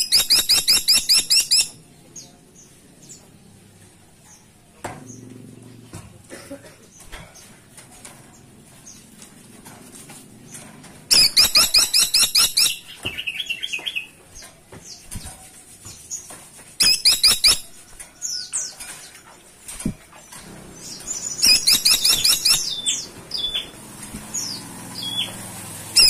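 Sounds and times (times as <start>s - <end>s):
woodpecker calling: 0.0s - 1.8s, 11.1s - 14.1s, 16.8s - 17.8s, 21.0s - 23.8s
soft low bird trill: 11.1s - 14.2s, 16.8s - 19.0s, 20.9s - 23.8s.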